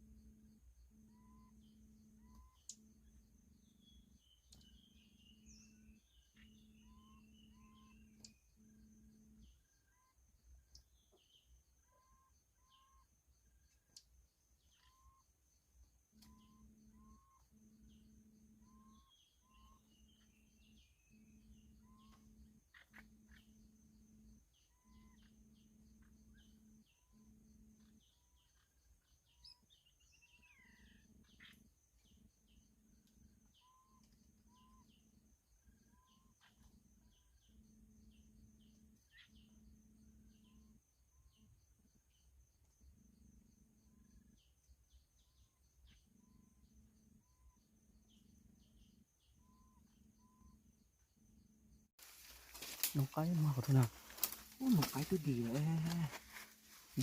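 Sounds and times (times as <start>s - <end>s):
steady high insect drone: 0.0s - 57.0s
faint bird calls: 16.2s - 23.6s, 24.6s - 32.2s, 39.1s - 39.6s, 52.1s - 57.0s.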